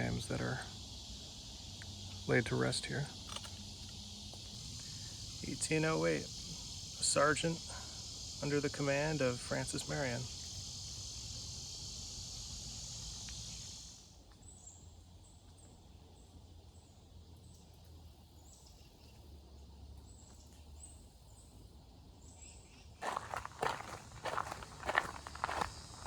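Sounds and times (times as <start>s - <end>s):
insects buzzing: 0.0s - 26.0s
footsteps: 23.0s - 26.0s.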